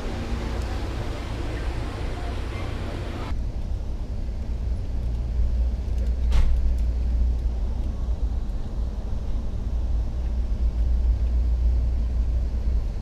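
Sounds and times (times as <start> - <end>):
station platform noise: 0.0 - 3.4
train car low rumble: 0.0 - 13.0.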